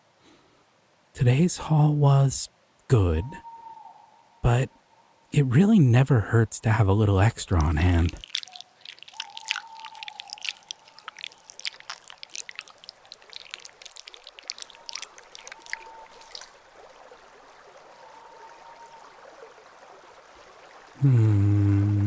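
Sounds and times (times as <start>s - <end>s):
water trickling and dripping: 6.7s - 21.1s.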